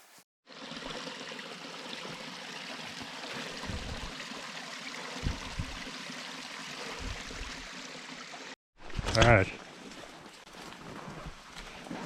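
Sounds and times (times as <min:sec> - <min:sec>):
dull low thumps: 0:03.6 - 0:04.1, 0:05.2 - 0:05.9.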